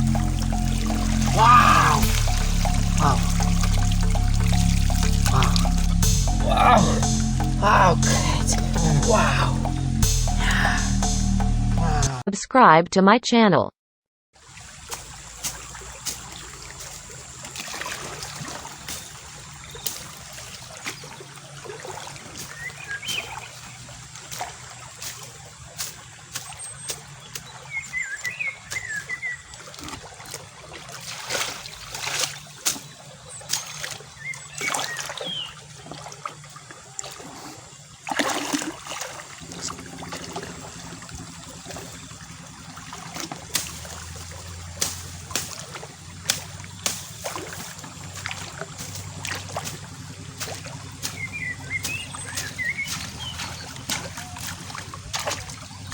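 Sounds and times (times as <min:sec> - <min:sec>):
shallow water trickling: 0:00.0 - 0:11.8, 0:14.4 - 0:55.9
short sharp splashes: 0:14.4 - 0:36.4, 0:37.0 - 0:55.9.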